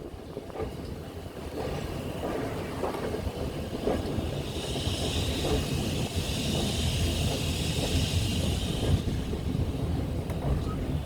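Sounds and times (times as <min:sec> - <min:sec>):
train rumbling: 0:00.0 - 0:11.0
wind buffeting microphone: 0:00.0 - 0:11.0
steady hiss: 0:04.3 - 0:10.0.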